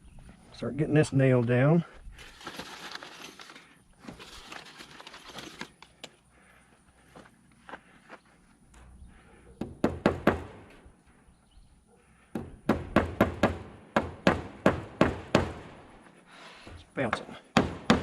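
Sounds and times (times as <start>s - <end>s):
hammer driving nails into wood: 12.4s - 15.7s, 17.5s - 18.0s.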